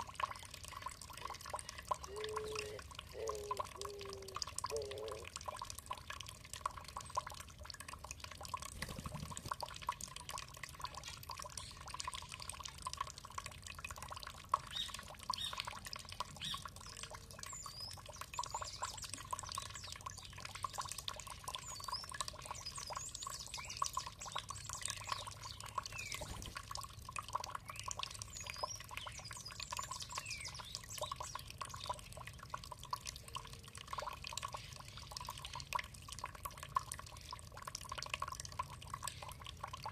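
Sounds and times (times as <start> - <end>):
water trickling and dripping: 0.0 - 39.9
songbirds chirping: 0.2 - 5.4, 14.5 - 35.8.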